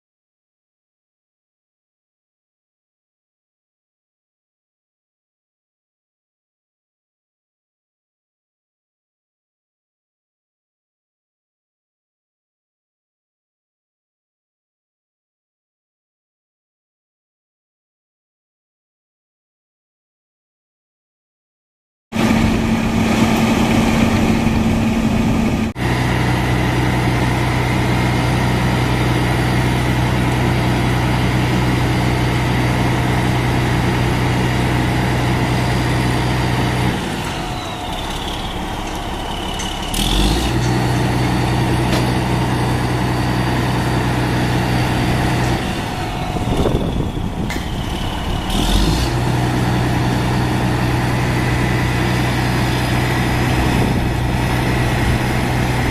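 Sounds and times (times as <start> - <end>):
diesel engine idling: 22.2 - 55.9.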